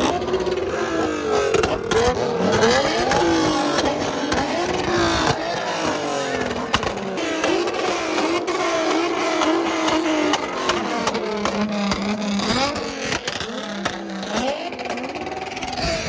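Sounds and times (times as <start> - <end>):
car engines revving: 0.0 - 16.0.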